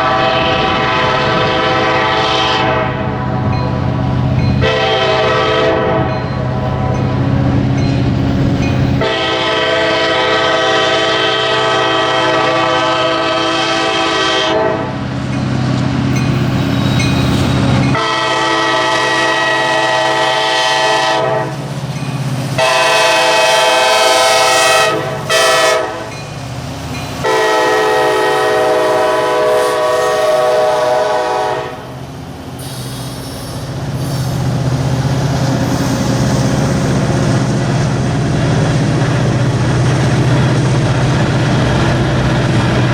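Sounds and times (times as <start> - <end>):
locomotive air horn blasts: 0.0 - 3.6, 4.6 - 7.0, 9.0 - 15.0, 17.9 - 21.6, 22.6 - 26.2, 27.2 - 31.9
passing train rumble: 0.0 - 42.9.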